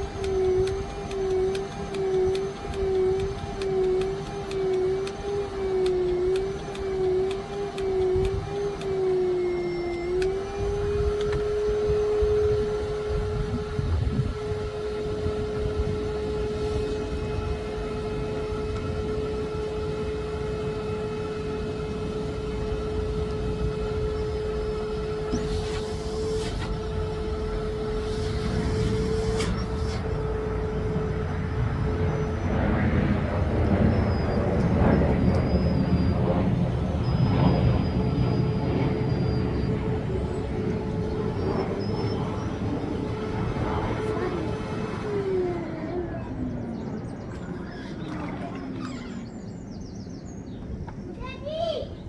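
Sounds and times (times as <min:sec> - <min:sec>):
vacuum cleaner running: 0:00.0 - 0:49.4.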